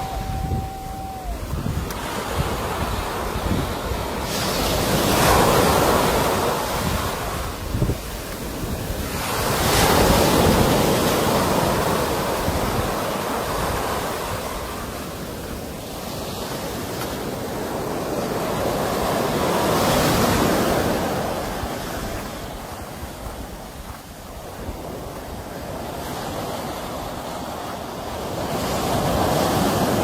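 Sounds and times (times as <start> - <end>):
ocean waves breaking on shore: 0.0 - 30.0
wind rumbling on microphone: 0.0 - 30.0.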